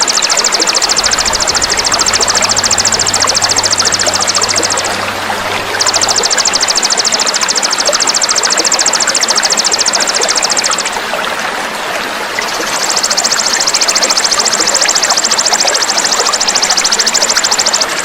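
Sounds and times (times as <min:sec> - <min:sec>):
high-pitched buzzing bird trill: 0:00.0 - 0:11.0
flowing water rushing: 0:00.0 - 0:18.0.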